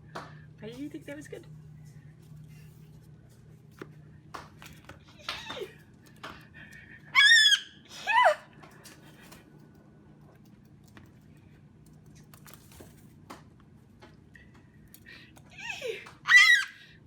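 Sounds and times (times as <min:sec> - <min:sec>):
cockatoo squawking: 0:07.2 - 0:08.4, 0:16.3 - 0:16.8.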